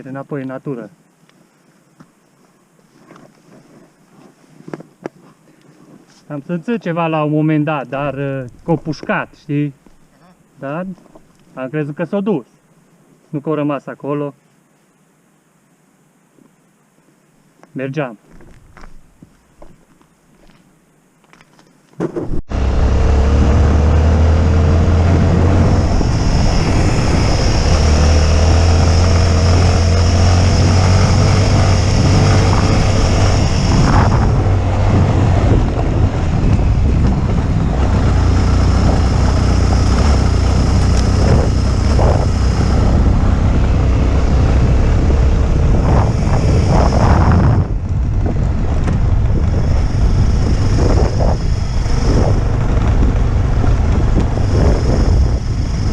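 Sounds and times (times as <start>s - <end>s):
wind buffeting microphone: 22.2s - 55.9s
motorcycle engine rumble: 22.3s - 55.9s.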